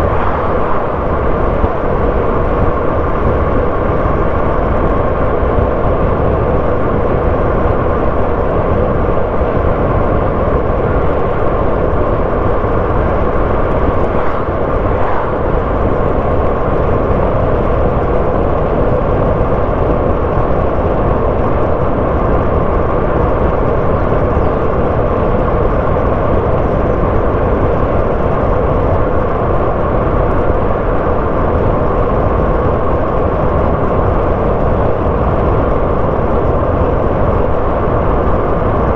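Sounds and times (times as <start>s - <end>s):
tyres on road: 0.0s - 2.8s
car engine: 0.0s - 3.1s, 11.6s - 17.7s.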